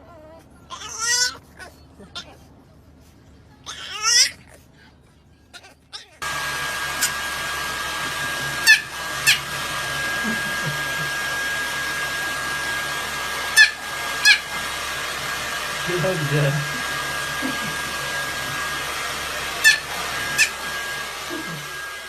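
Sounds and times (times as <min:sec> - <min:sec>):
whirring blower with high whine: 0:06.2 - 0:22.0.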